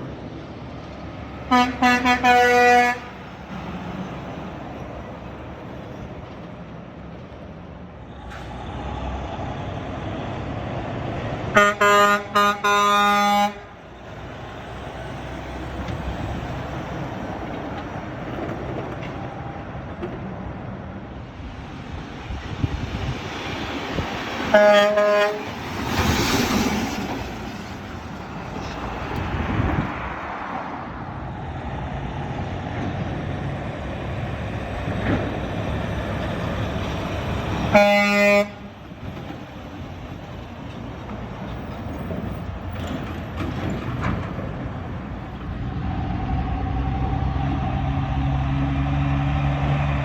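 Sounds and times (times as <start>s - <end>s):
road traffic passing: 0.0s - 50.0s
truck air horn blasts: 1.5s - 3.3s, 11.5s - 13.8s, 24.5s - 25.6s, 37.7s - 38.8s
vehicle passing close: 13.5s - 37.8s, 38.4s - 50.0s.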